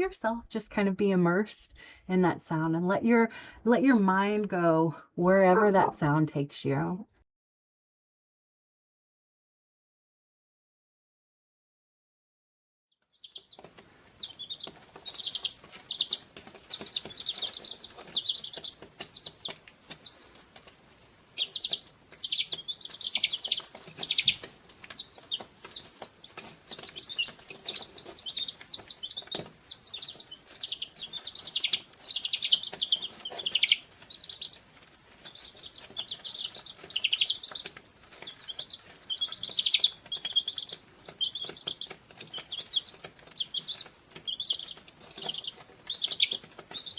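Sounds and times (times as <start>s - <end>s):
small birds chirping: 13.0s - 46.9s.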